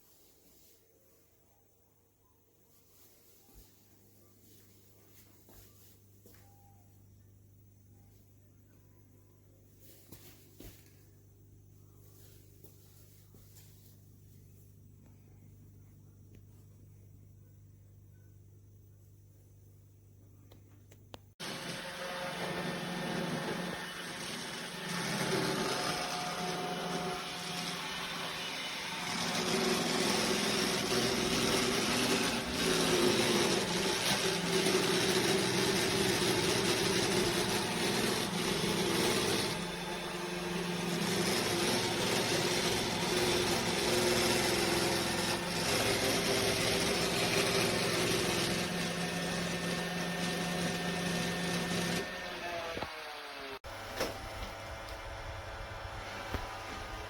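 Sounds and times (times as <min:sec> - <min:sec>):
robot vacuum motor whirring: 0:21.4 - 0:53.1.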